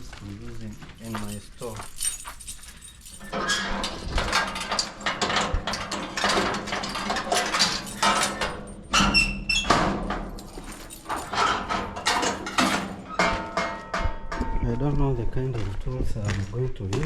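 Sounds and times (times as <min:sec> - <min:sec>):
metal tools clattering: 0:01.0 - 0:14.5
ringing metal clinks: 0:01.0 - 0:14.6.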